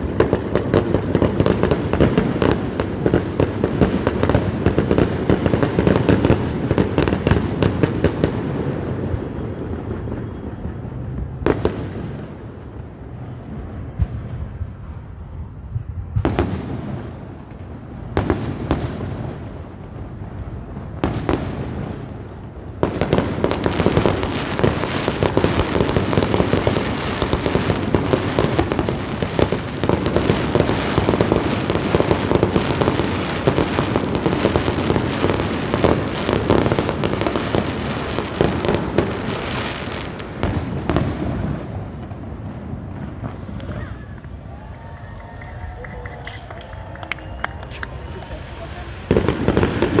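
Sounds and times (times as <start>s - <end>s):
fireworks bangs: 0.0s - 50.0s
fireworks crackling: 0.0s - 50.0s.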